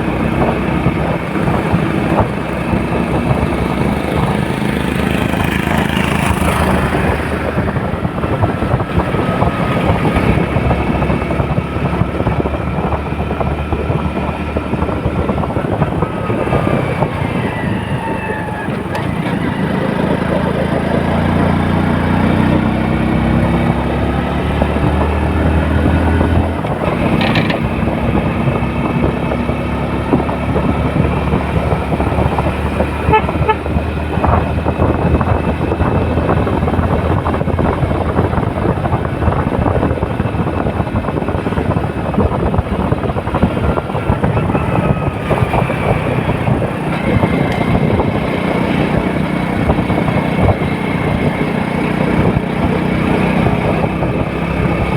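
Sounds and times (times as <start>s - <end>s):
vehicle engines running: 0.0s - 54.9s
car horn tooting: 33.0s - 33.8s.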